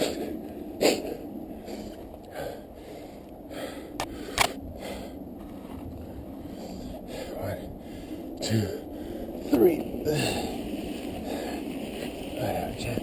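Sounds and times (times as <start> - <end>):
heavy breathing: 0.0 - 5.4, 6.0 - 12.1
sharp clicks: 4.0 - 4.6.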